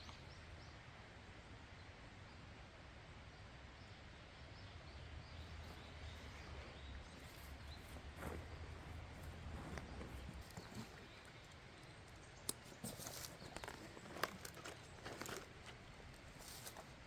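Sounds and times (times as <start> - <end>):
light clicks and rustles: 5.4 - 17.0.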